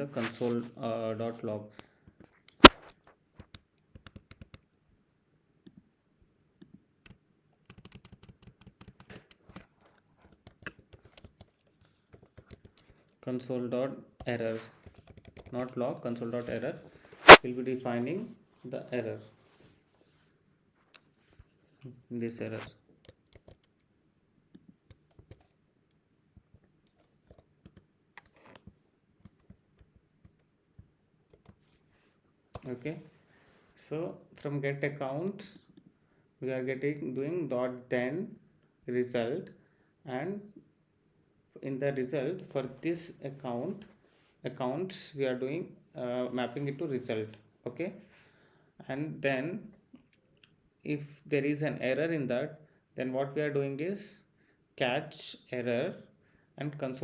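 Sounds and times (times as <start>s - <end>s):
computer keyboard typing: 7.6s - 12.9s, 14.8s - 15.6s, 23.3s - 23.7s.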